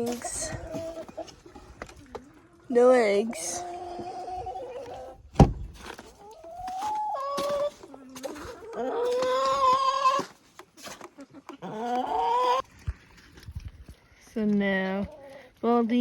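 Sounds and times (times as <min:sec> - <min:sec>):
hens calling: 0:00.0 - 0:05.2, 0:06.1 - 0:10.4, 0:11.0 - 0:12.7
sharp thunk: 0:05.4 - 0:05.7.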